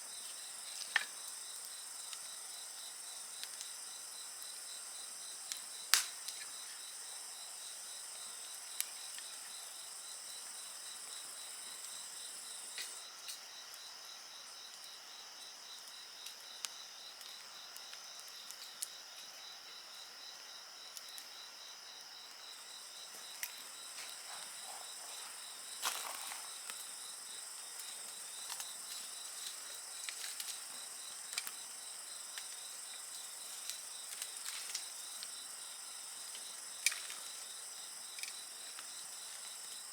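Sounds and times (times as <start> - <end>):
insects chirping in a trill: 0.0 - 39.9
wood fire crackling and popping: 0.4 - 2.3, 5.4 - 6.6, 16.2 - 19.3, 22.2 - 35.4.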